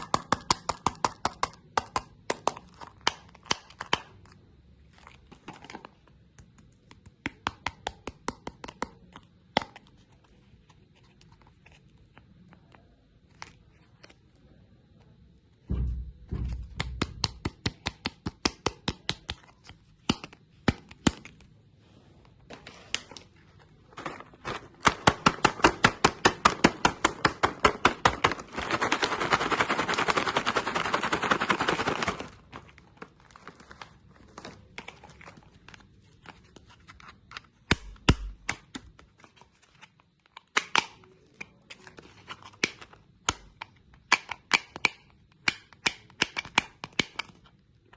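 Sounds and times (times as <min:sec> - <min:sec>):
hard candy crunching: 0:23.8 - 0:36.1.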